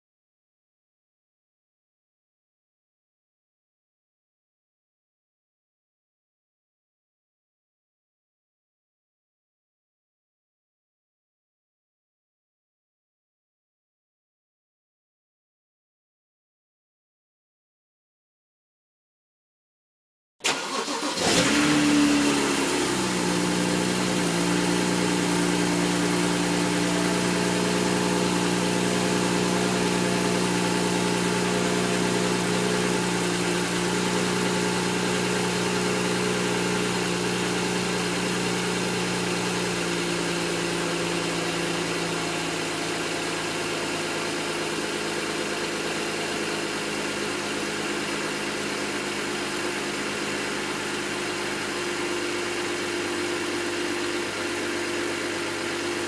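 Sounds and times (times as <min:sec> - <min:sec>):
car engine idling with misfire: 0:20.4 - 0:56.0.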